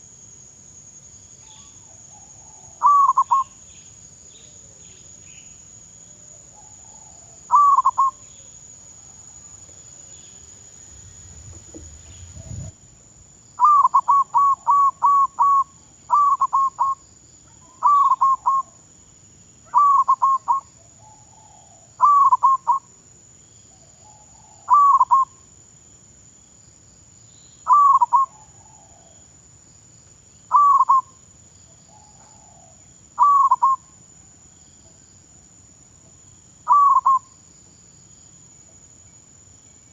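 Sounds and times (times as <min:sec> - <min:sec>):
dove cooing: 0:02.4 - 0:03.5, 0:06.9 - 0:08.2, 0:10.9 - 0:12.8, 0:24.7 - 0:25.2, 0:31.9 - 0:33.8, 0:36.7 - 0:37.2.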